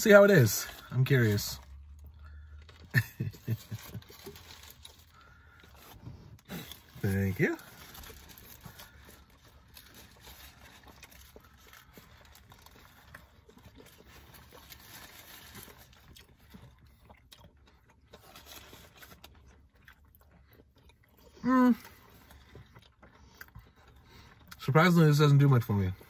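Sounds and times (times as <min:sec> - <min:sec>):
chewing food: 0:00.0 - 0:26.0
paper wrapper rustling: 0:02.6 - 0:16.1.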